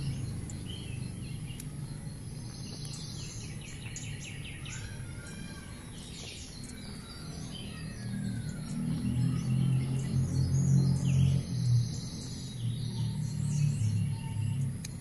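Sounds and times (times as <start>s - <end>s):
wild birds chirping: 0.0s - 15.0s.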